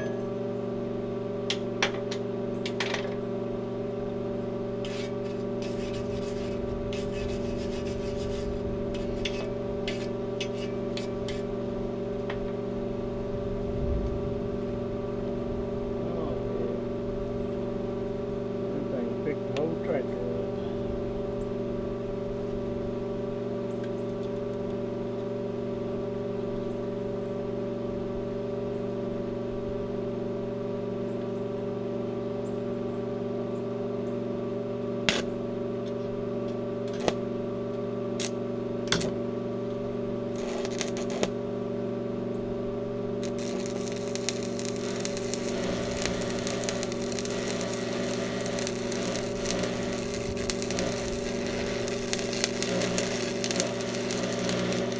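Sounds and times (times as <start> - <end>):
steady machine hum: 0.0 - 54.9
electric welding arc crackling: 4.8 - 11.5, 36.8 - 37.2, 38.2 - 39.0, 40.3 - 41.4, 43.1 - 54.9.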